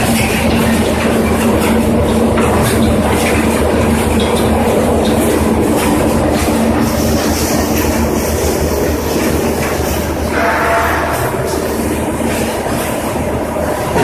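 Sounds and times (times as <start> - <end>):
heavy machine hum: 0.0 - 14.0
metal clattering and clanking: 0.0 - 14.0
machine squeal: 9.8 - 12.8.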